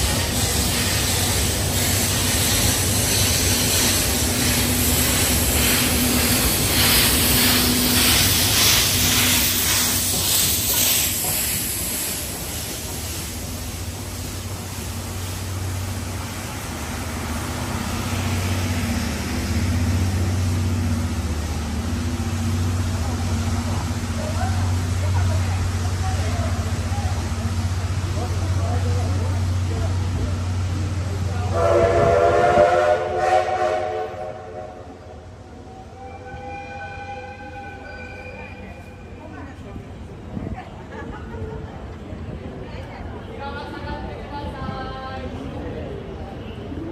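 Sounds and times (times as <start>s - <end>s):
steam locomotive hissing in surges: 0.0s - 35.1s
train coaches rumbling on rails: 0.0s - 46.9s.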